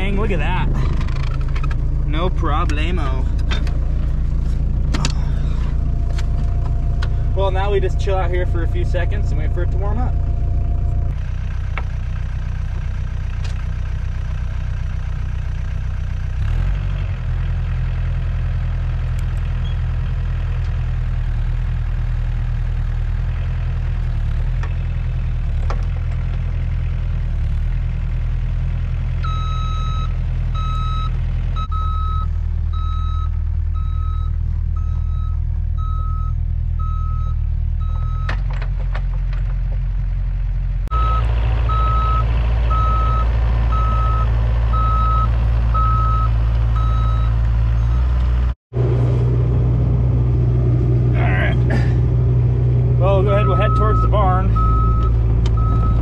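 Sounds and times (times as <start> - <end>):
diesel engine idling: 0.0 - 56.0
alarm beeper: 40.9 - 48.1, 53.1 - 56.0.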